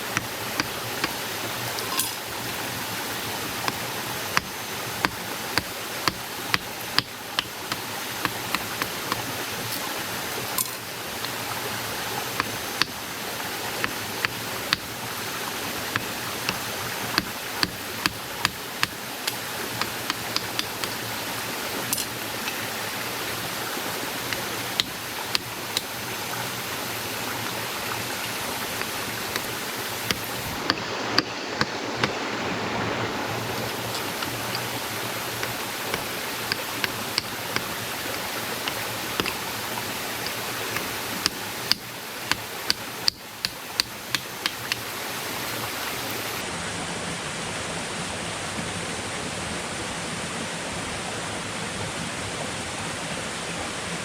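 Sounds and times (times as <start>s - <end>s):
sharp knocks or clicks: 0.0s - 9.8s, 12.3s - 13.0s, 13.8s - 15.0s, 15.9s - 21.0s, 24.1s - 26.2s, 28.7s - 32.2s, 33.6s - 44.9s
rushing water: 0.0s - 54.0s.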